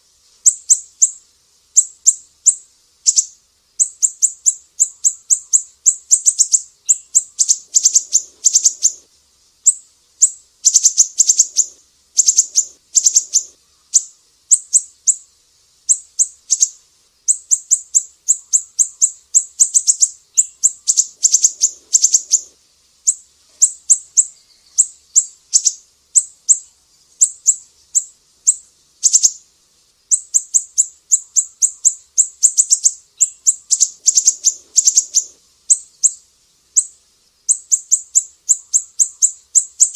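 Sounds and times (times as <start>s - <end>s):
bird singing high sharp notes: 1.8s - 9.0s, 9.7s - 15.2s, 23.1s - 29.4s, 30.1s - 36.2s.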